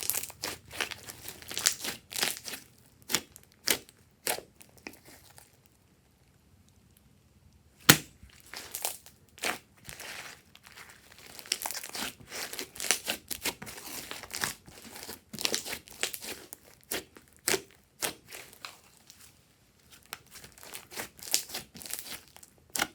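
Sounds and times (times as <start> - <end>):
slime squeezed with sticky pops: 0.0 - 5.3, 20.2 - 22.9.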